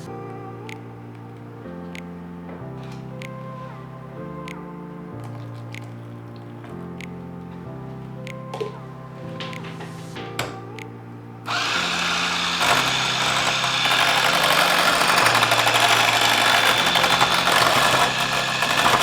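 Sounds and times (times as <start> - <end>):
soft background music: 0.0 - 19.0
electric mixer running: 11.5 - 19.0.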